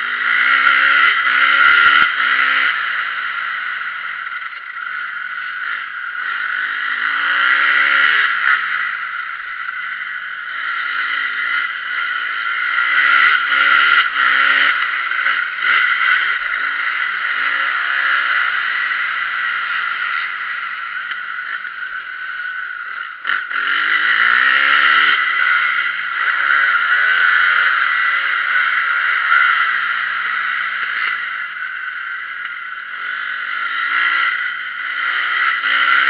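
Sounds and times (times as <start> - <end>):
motocross bike engine revving: 0.0 - 36.0.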